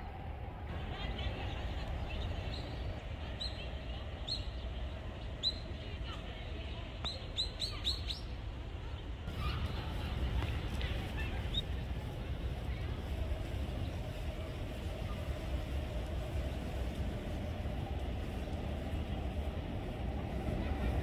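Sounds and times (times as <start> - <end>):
steady low rumble: 8.3 - 21.0.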